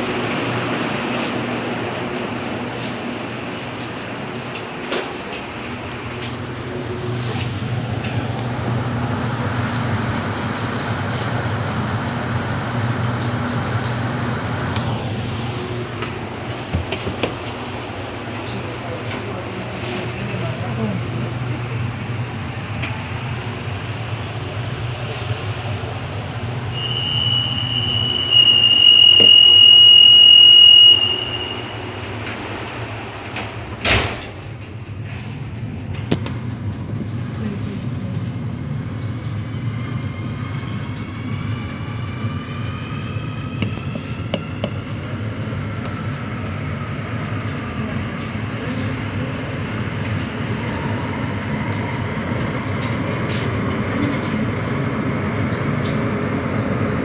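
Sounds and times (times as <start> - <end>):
train running noise: 0.0 - 57.0
train doors thudding shut: 14.8 - 20.0, 28.3 - 36.5
high warning tone: 26.7 - 32.0.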